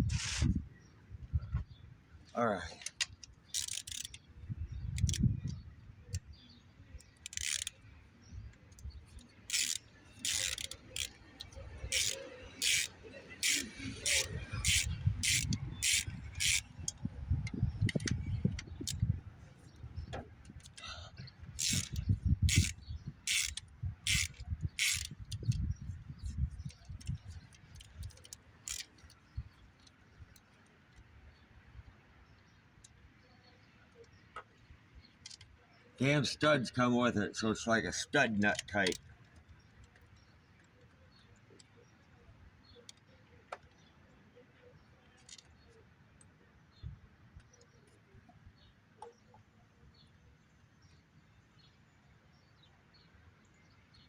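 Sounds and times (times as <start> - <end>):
sharp metal clicks: 2.7 - 31.1, 38.1 - 41.0
ratchet wrench clicking: 2.8 - 6.2, 7.0 - 7.8, 8.7 - 19.2, 21.4 - 25.7, 26.6 - 29.2.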